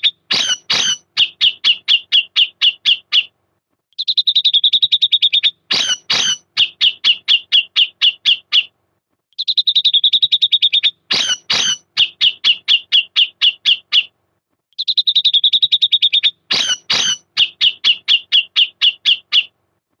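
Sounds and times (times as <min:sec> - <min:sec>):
bulbul singing: 0:00.0 - 0:01.6.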